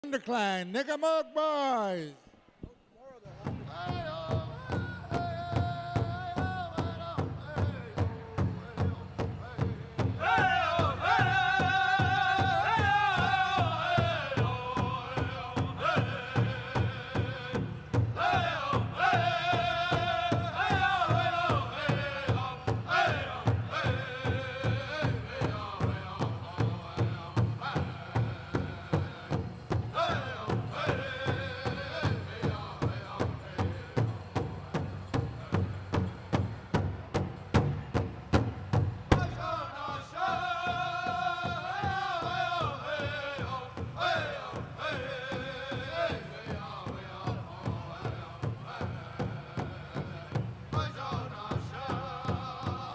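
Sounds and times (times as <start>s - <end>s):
large drum beaten in rhythm: 3.4s - 52.9s
high-pitched group singing: 10.2s - 34.0s, 39.2s - 52.9s.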